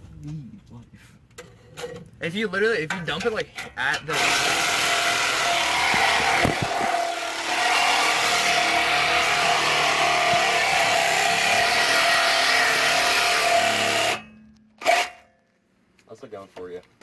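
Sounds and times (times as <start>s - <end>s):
reciprocating saw cutting metal pipe: 3.9s - 15.3s.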